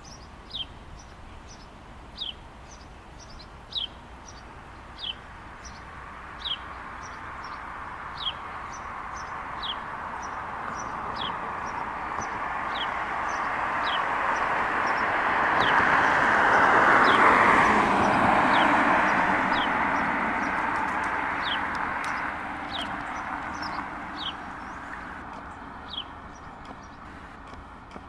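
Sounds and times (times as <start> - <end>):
approaching vehicle rushing: 10.5 - 25.3.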